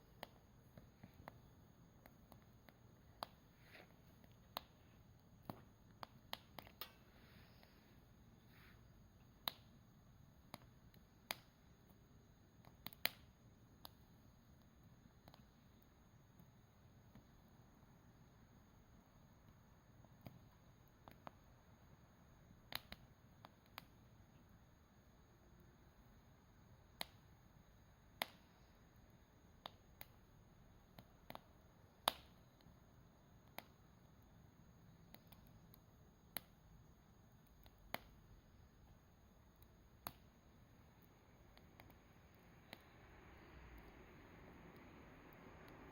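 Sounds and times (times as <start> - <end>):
campfire crackling: 0.0 - 45.9.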